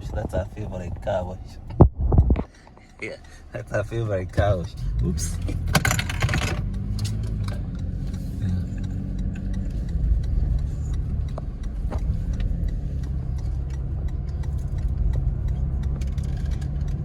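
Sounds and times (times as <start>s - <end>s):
car engine and road noise: 0.0s - 17.0s
faint clicks: 6.6s - 17.0s.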